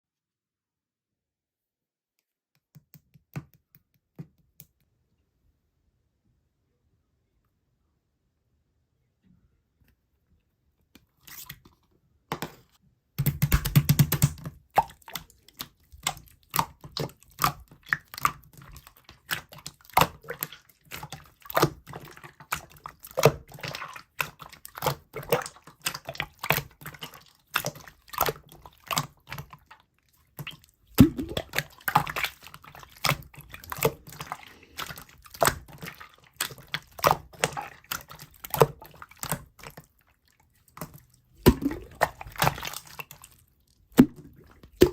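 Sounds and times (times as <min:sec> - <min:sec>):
slime squished by hand: 0:13.3 - 0:40.0, 0:40.7 - 0:44.9.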